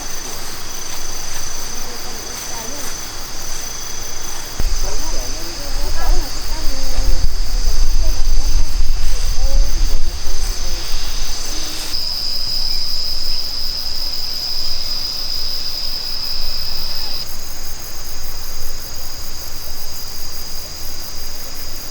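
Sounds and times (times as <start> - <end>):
higher-pitched insect song: 0.0 - 21.9
insects droning: 0.0 - 21.9
low rumble: 4.6 - 12.0.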